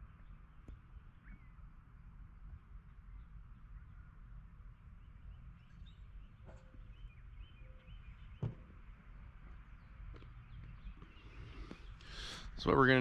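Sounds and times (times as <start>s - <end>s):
faint bird chirps: 0.1s - 1.7s, 3.0s - 8.6s
short knock: 8.4s - 8.7s.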